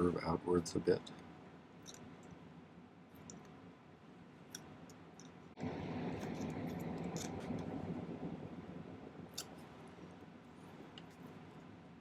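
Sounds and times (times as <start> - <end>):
steady rushing noise: 3.9 - 12.0.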